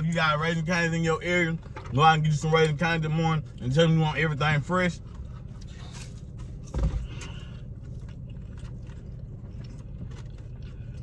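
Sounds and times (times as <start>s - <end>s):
low hum inside a car: 0.0s - 11.0s
person chewing food: 5.0s - 11.0s.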